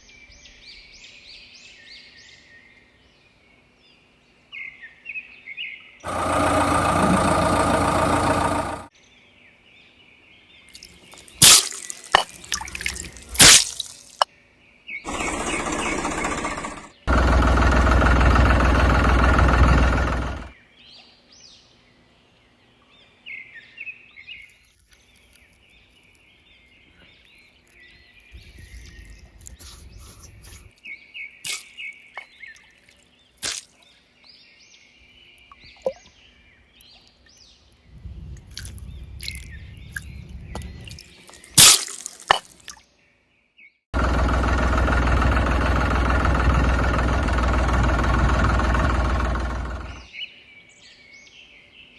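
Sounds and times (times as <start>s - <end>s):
birds chirping: 4.5s - 14.2s, 14.9s - 51.9s
heavy diesel machinery running: 6.1s - 8.9s, 15.1s - 20.5s, 44.0s - 50.1s
faint low rumble: 37.8s - 41.0s.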